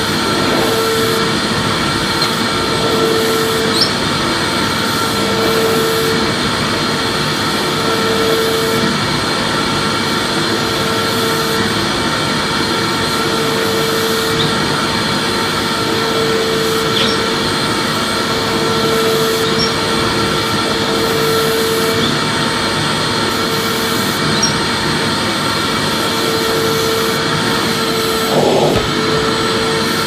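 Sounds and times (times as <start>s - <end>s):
vacuum cleaner running: 0.0s - 30.0s
bump: 28.3s - 29.4s.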